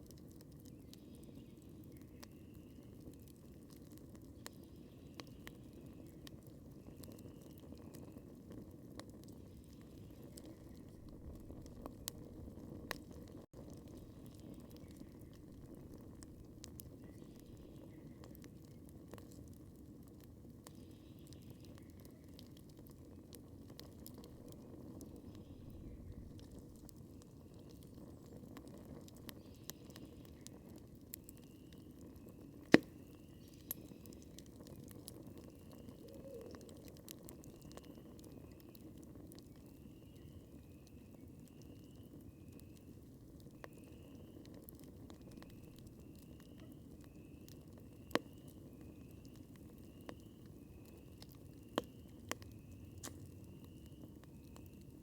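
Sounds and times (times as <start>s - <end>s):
campfire crackling and popping: 0.0s - 55.0s
faint high chirp: 0.7s - 3.0s, 6.8s - 8.2s, 29.3s - 38.9s, 39.6s - 42.9s, 43.5s - 55.0s.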